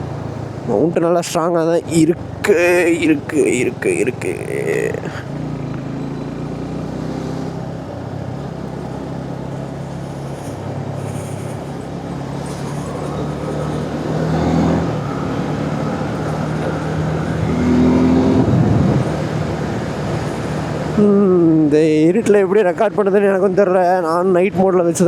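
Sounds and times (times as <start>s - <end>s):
wind noise on microphone: 18.4s - 19.2s.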